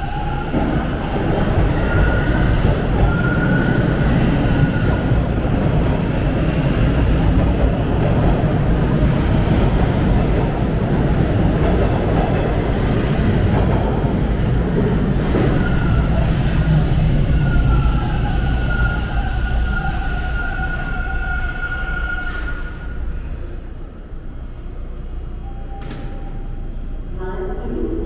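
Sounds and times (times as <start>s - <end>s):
subway train wheels rumbling: 0.0s - 28.0s
high-pitched wheel squeals: 15.4s - 24.4s.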